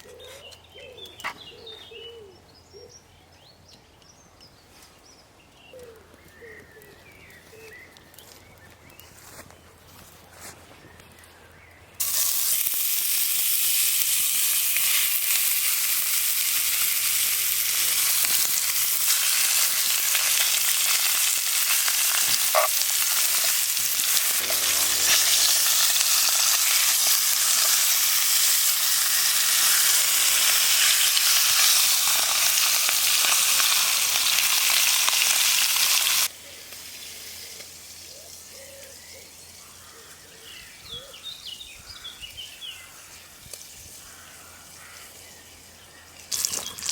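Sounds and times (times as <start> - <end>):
woodland background: 0.0 - 46.9
food sizzling in a pan: 12.0 - 38.1.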